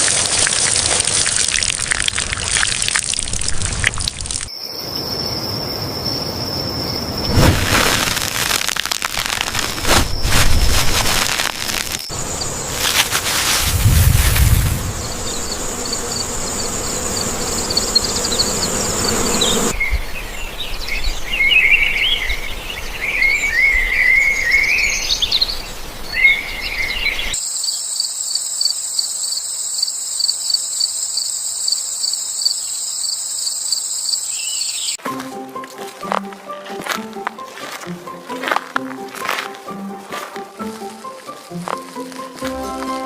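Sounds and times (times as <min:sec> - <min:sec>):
insects trilling: 0:00.0 - 0:19.8, 0:24.1 - 0:35.0.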